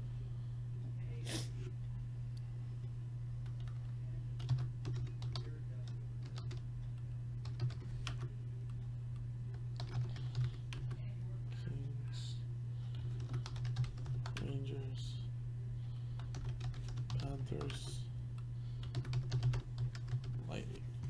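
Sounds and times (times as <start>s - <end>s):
low electrical hum: 0.0s - 21.0s
computer keyboard typing: 3.4s - 6.7s, 7.4s - 8.3s, 9.5s - 11.0s, 12.9s - 14.6s, 16.2s - 18.0s, 18.8s - 20.7s.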